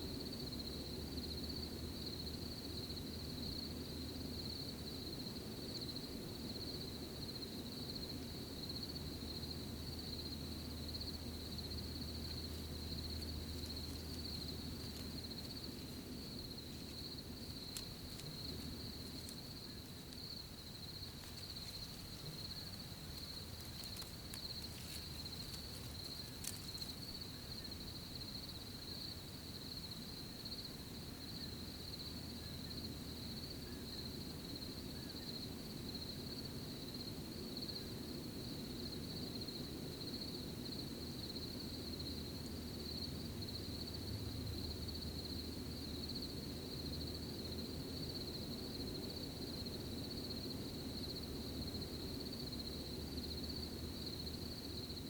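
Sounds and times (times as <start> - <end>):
low steady hum: 0.0 - 35.8
crickets trilling: 0.0 - 55.0
faint clicks: 21.0 - 27.0.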